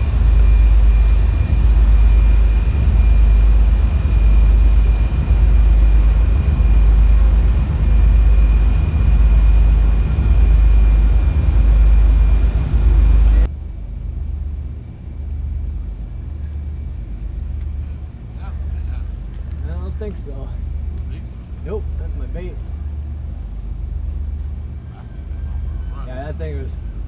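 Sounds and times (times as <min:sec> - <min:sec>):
wind buffeting microphone: 0:00.0 - 0:13.5
faint high whine: 0:00.0 - 0:27.0.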